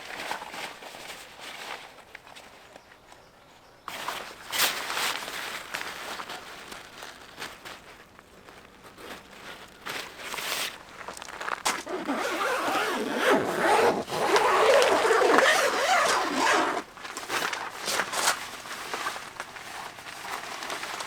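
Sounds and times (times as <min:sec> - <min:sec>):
fabric rustling and scraping: 0:03.9 - 0:21.0
zipper being drawn: 0:11.8 - 0:16.9.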